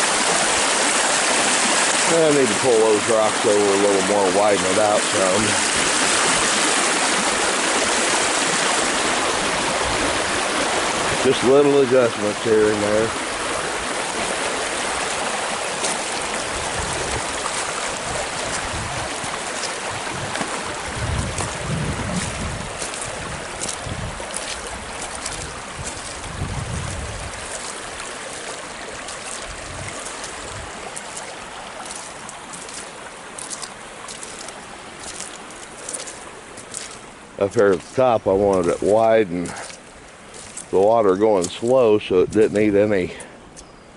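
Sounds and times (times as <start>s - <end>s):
water rushing over spillway: 0.0s - 43.4s
low rumbles: 16.2s - 27.5s.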